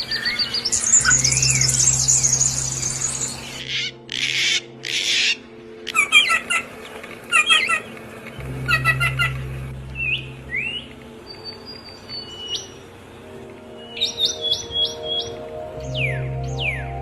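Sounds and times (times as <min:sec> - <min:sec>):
low steady hum: 0:00.0 - 0:04.1, 0:05.4 - 0:13.9
birds chirping: 0:00.0 - 0:17.0.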